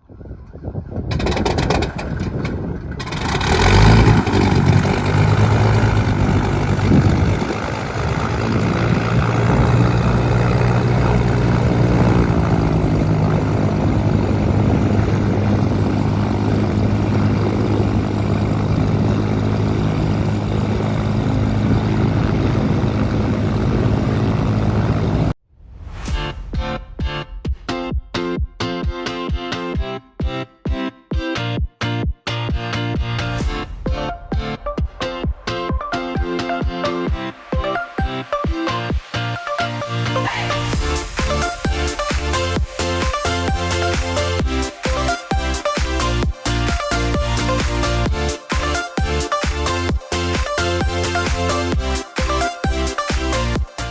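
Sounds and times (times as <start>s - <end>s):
aircraft piston engine running: 1.1s - 25.4s, 40.2s - 53.9s.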